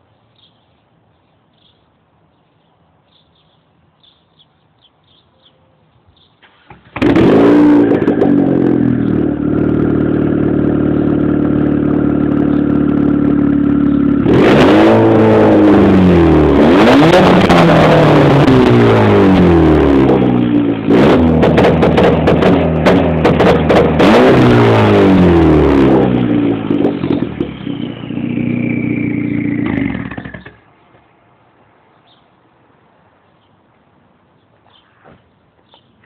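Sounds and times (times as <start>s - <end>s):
car engine starting and revving: 6.4s - 30.6s.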